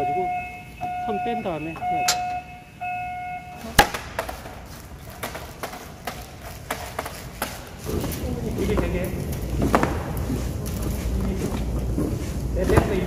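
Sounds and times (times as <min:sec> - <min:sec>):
steady high tone: 0:00.0 - 0:03.9.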